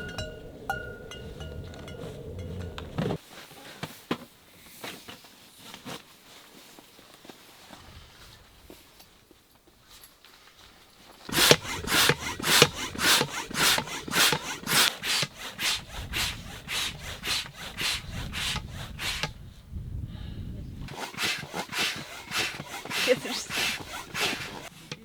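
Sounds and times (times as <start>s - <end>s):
hand saw cutting wood: 11.3s - 19.3s, 20.9s - 25.0s.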